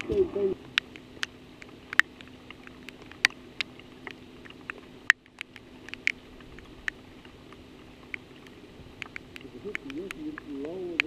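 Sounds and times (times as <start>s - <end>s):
rain falling: 0.0s - 11.0s
raindrops ticking close by: 0.0s - 11.0s
steady low hum: 0.0s - 11.0s.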